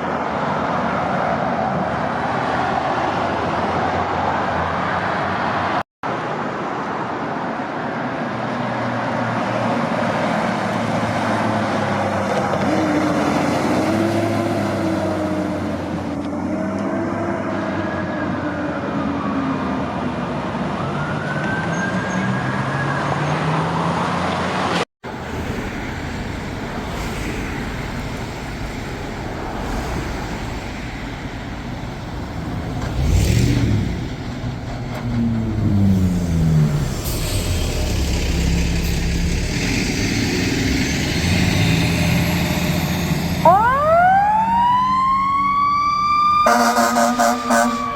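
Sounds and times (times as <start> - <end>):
road traffic noise: 0.0 - 47.9
fire truck siren wailing: 16.3 - 23.6, 42.2 - 47.9
truck engine: 23.8 - 47.9.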